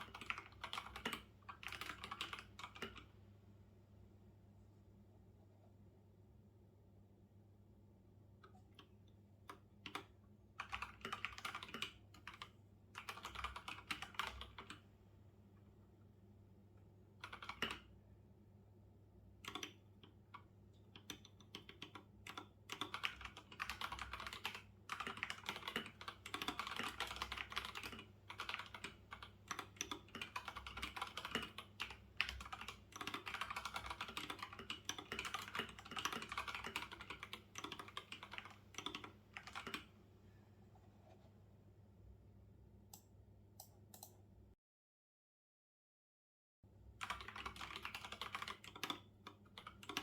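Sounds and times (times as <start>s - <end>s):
typing on computer keyboard: 0.0s - 3.1s, 9.5s - 14.8s, 17.2s - 17.9s, 19.4s - 39.9s, 43.6s - 44.2s, 47.0s - 50.0s.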